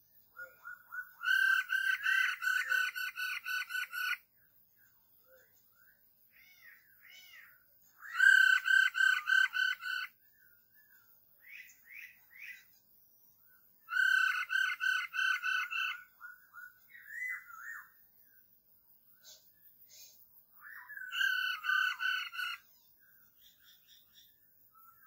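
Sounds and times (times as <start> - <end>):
bird calls with repeated notes: 0.0 - 4.4, 6.4 - 12.8, 13.8 - 18.1.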